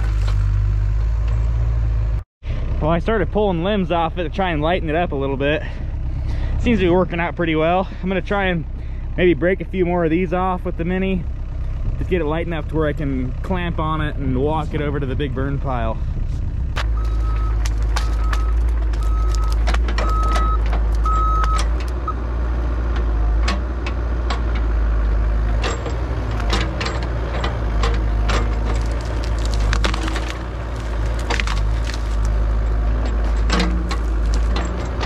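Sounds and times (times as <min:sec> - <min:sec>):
excavator engine running: 0:00.0 - 0:35.0
branches cracking and snapping: 0:16.8 - 0:22.0, 0:26.3 - 0:35.0.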